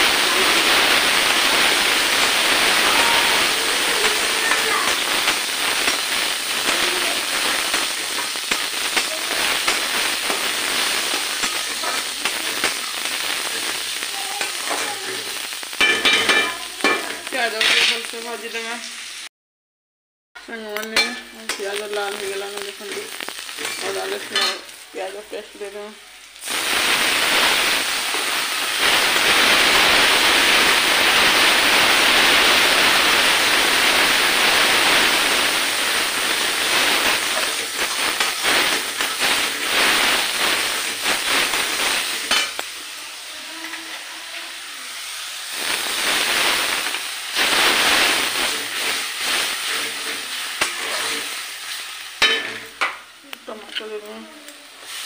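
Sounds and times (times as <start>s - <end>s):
onion sizzling in hot oil: 0.0s - 19.3s, 20.4s - 55.0s
spatula scraping metal pan: 49.6s - 52.8s.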